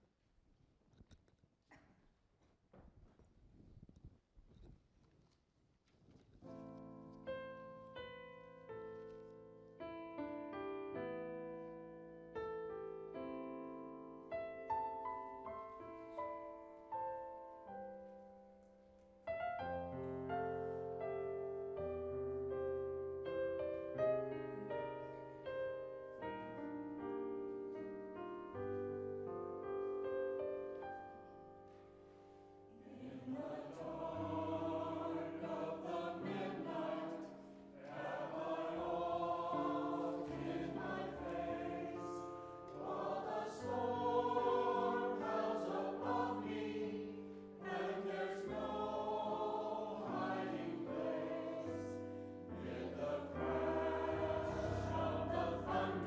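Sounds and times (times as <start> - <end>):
piano accompaniment: 6.4 - 56.0
choir singing: 32.6 - 56.0.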